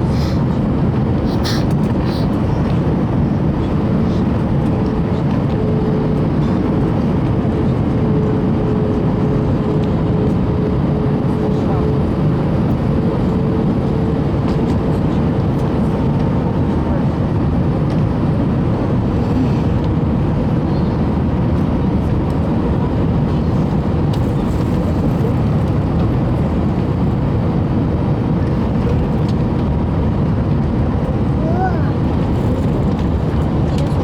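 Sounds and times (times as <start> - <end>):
faint hum: 0.0 - 16.2
airliner cabin engine rumble: 0.0 - 34.0.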